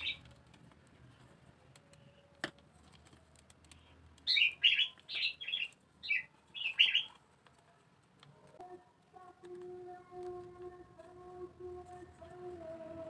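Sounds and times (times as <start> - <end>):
small bird chirping: 0.0 - 0.4, 4.2 - 7.2.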